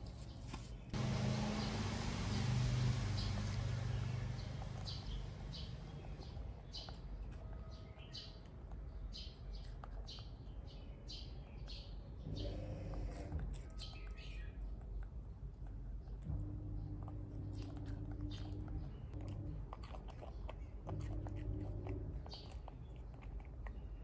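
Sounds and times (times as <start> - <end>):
small birds chirping: 0.0 - 24.0
low hum: 1.0 - 6.6, 14.6 - 23.8.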